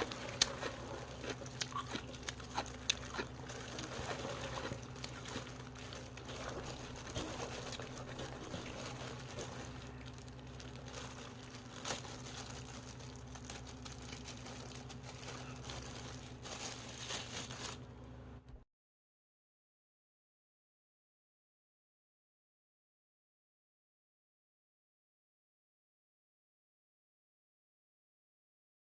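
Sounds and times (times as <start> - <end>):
gloved hands mixing wet food: 0.0 - 18.0
low steady hum: 0.0 - 18.6.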